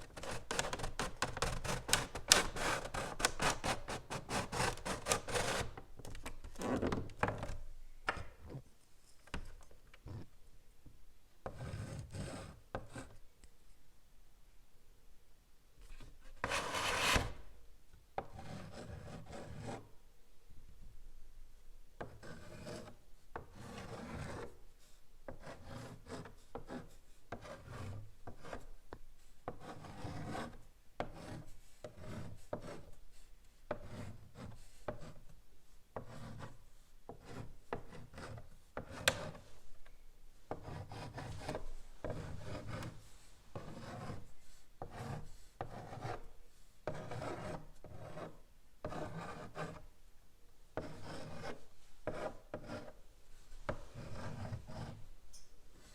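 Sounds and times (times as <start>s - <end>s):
chalk scratching on blackboard: 0.1s - 5.8s, 11.5s - 13.2s, 15.9s - 17.4s, 18.2s - 19.9s, 22.0s - 35.3s, 36.0s - 39.6s, 40.5s - 49.9s, 50.8s - 55.1s.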